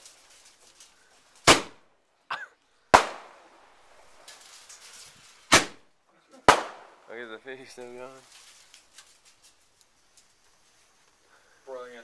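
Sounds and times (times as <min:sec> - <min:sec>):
faint firework crackling: 0:00.0 - 0:01.9, 0:02.9 - 0:12.0
fireworks bangs: 0:01.4 - 0:01.9, 0:02.9 - 0:08.0.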